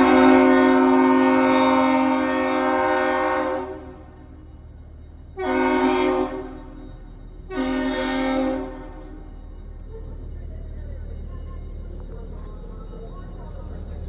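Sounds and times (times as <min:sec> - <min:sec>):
deep ship horn blasts: 0:00.0 - 0:04.0, 0:05.4 - 0:06.7.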